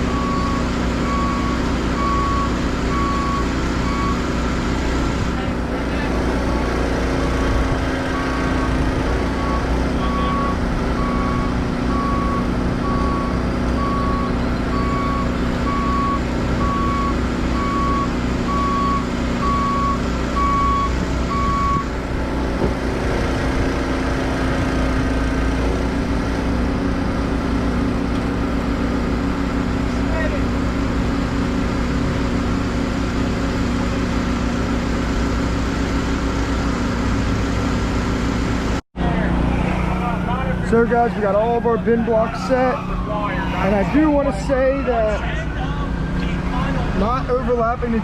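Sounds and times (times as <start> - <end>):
backup alarm beeping: 0.0 - 4.3, 8.1 - 21.9
diesel engine droning: 0.0 - 48.0.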